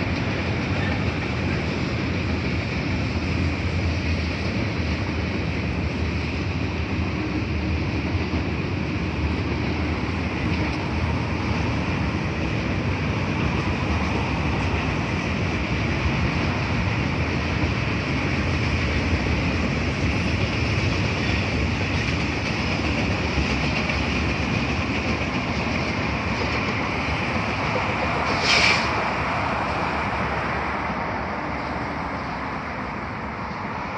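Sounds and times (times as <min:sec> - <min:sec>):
train wheels on track: 0:00.0 - 0:33.9.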